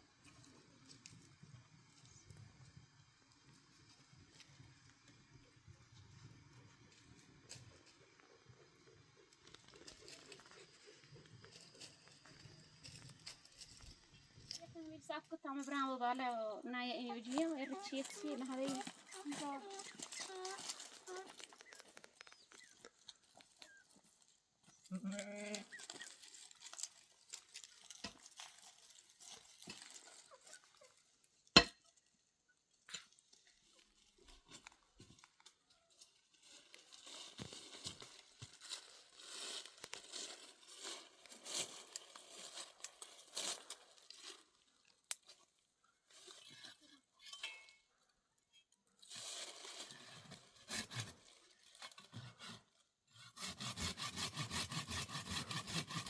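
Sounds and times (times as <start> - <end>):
rustling and crinkling: 6.3 - 31.4, 32.7 - 47.9, 48.9 - 52.9.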